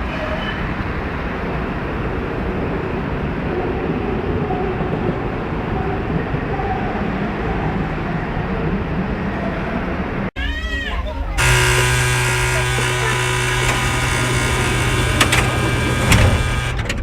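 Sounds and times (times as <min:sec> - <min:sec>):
faint wavering whine: 0:11.4 - 0:16.9
tram wheels rumbling on rails: 0:11.4 - 0:17.0.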